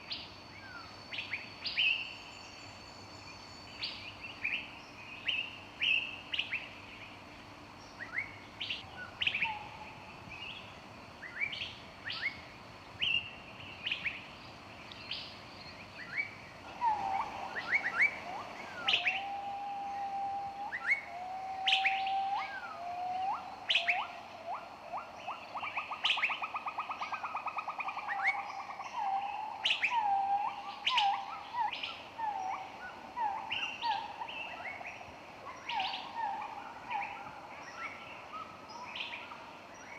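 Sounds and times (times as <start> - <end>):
songbirds chirping: 0.0 - 39.9
held bird whistles: 16.8 - 24.2.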